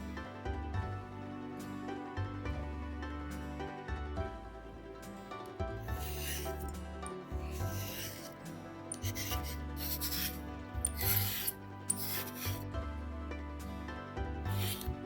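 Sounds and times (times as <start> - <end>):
soft background music: 0.0 - 15.0
rasping food preparation strokes: 5.8 - 12.6, 14.4 - 15.0.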